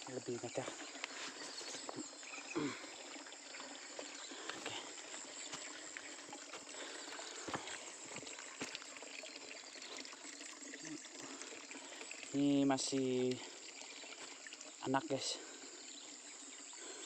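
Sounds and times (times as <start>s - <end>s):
insect drone: 0.0s - 17.0s
water trickling: 0.0s - 17.0s.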